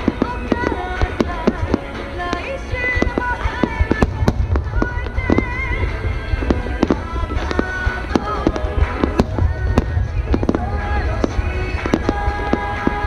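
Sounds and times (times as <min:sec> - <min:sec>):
fireworks bangs: 0:00.0 - 0:13.0
music playing: 0:00.0 - 0:13.0
low rumble: 0:03.8 - 0:13.0.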